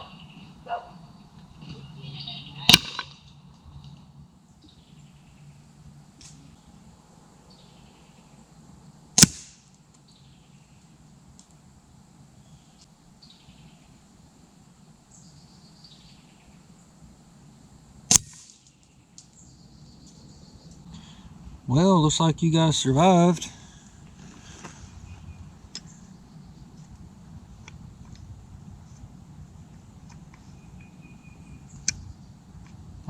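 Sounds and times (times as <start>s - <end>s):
air rifle shots: 2.7s - 3.2s, 9.2s - 9.7s, 18.1s - 18.7s.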